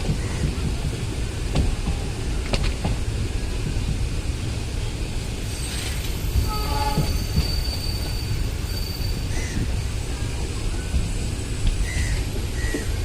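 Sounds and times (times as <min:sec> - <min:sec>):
train wheels rumbling on track: 0:00.0 - 0:13.0
high-pitched wheel squeals: 0:05.5 - 0:10.3.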